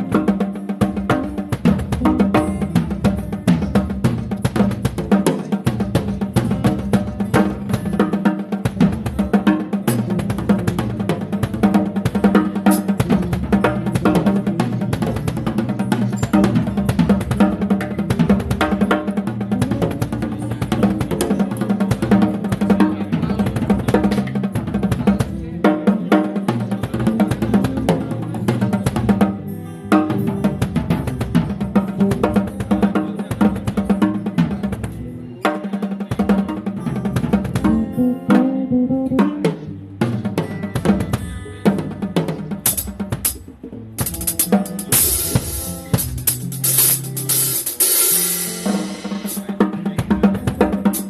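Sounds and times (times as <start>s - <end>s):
bass guitar notes: 0.0s - 5.1s, 36.6s - 47.7s
bass notes: 0.0s - 5.1s, 5.7s - 25.6s, 36.6s - 47.8s
drum kit playing a busy groove: 0.0s - 51.0s
guitar: 0.0s - 51.0s
pitched instruments: 36.6s - 49.6s.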